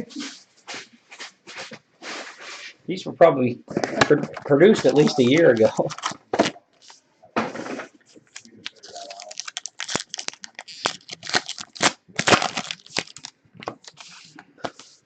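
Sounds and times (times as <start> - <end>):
cards being handled: 3.7 - 7.0, 8.2 - 15.0
wrappers crinkling and tearing: 3.7 - 7.0, 8.3 - 15.0.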